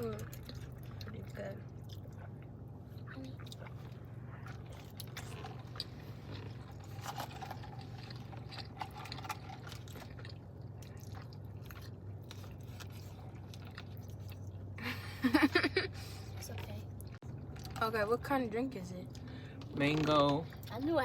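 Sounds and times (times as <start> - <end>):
steady low hum: 0.0 - 21.0
person chewing food: 0.1 - 14.8, 16.0 - 17.8.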